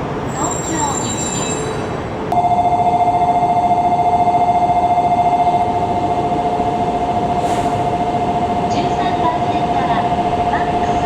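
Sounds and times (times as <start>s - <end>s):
train noise: 0.0s - 11.0s
electronic departure bell: 0.3s - 8.7s.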